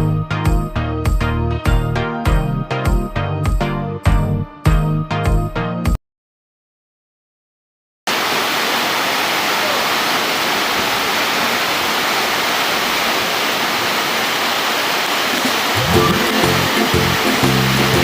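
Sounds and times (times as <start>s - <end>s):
waterfall rushing: 8.1s - 18.0s.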